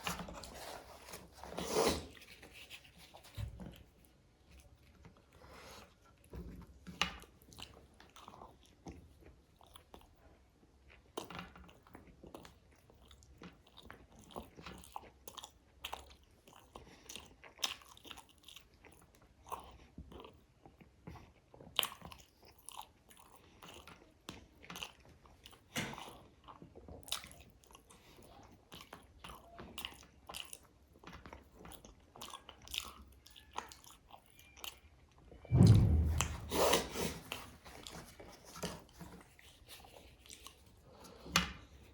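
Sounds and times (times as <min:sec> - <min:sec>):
loud low thump: 0:35.5 - 0:37.4.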